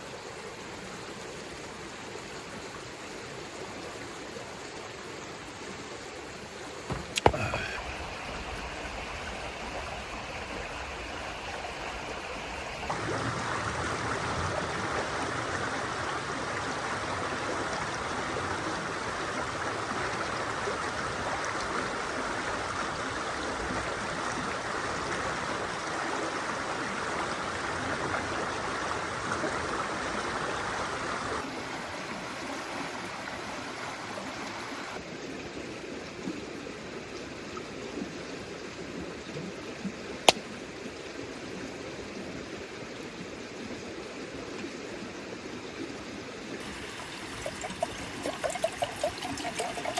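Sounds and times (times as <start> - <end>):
flowing water rushing: 0.1 - 35.1, 46.1 - 49.9.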